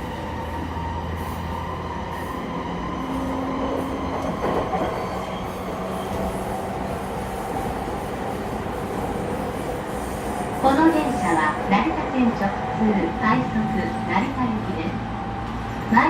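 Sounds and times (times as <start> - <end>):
wheels rumbling on rail: 0.0 - 16.0
train rattle: 3.0 - 16.0.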